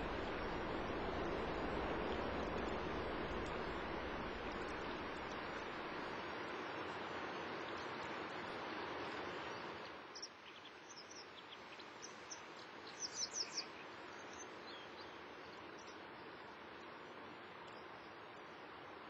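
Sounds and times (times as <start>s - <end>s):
outdoor rushing noise: 0.0s - 5.8s.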